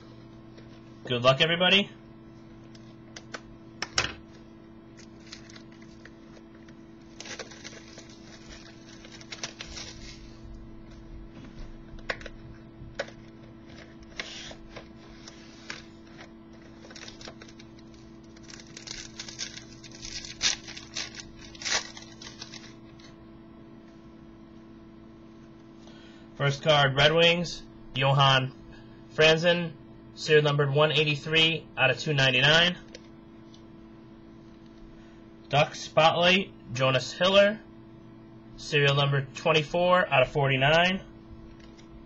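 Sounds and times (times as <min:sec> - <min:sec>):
low electrical hum: 0:00.0 - 0:42.0
wrapper tearing and crinkling: 0:05.0 - 0:06.1, 0:07.1 - 0:10.4, 0:16.6 - 0:23.1.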